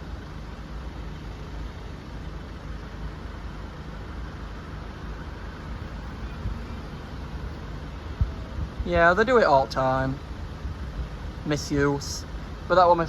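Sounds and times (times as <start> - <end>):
vehicle engines rumbling: 0.0 - 13.0.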